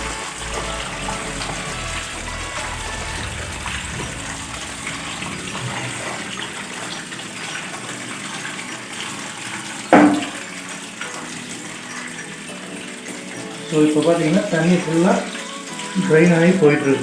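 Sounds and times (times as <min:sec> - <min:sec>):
water gushing from drain: 0:00.0 - 0:17.0.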